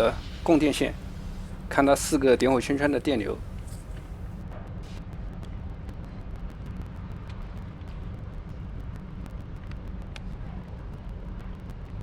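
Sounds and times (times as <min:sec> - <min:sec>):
car engine idling: 0:00.0 - 0:04.4.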